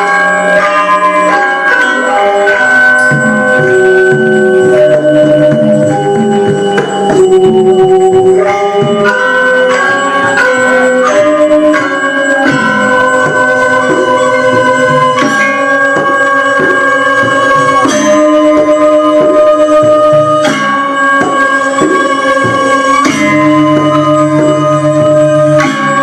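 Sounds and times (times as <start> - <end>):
gamelan music: 0.0 - 26.0.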